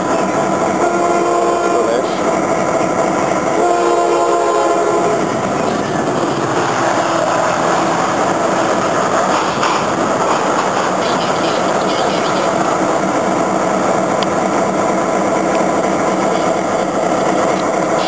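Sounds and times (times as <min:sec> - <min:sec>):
train rolling past: 0:00.0 - 0:18.0.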